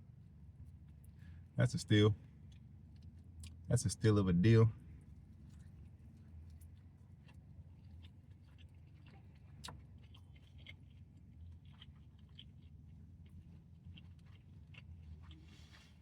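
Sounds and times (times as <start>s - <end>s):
low steady hum: 0.0s - 16.0s
chewing crunchy food: 2.4s - 3.7s, 5.1s - 16.0s.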